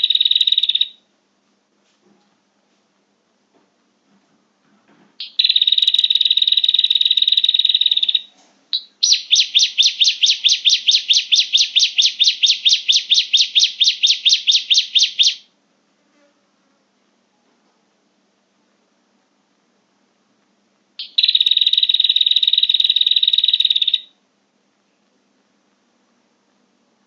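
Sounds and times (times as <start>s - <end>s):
rapid repeated bird chirps: 0.0s - 1.0s, 5.2s - 15.5s, 21.0s - 24.2s
buzzing bird trill: 9.0s - 15.4s, 21.0s - 24.1s.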